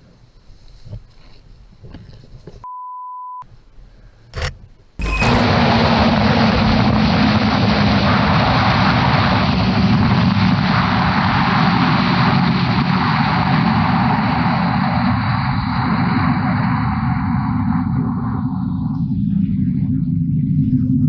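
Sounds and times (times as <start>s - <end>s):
motorcycle engine drone: 5.0s - 15.7s.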